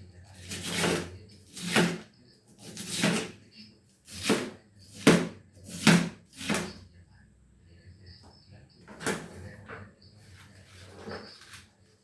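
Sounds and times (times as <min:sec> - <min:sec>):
knife slicing cabbage on a board: 0:00.4 - 0:02.0, 0:02.6 - 0:03.3, 0:04.1 - 0:06.7.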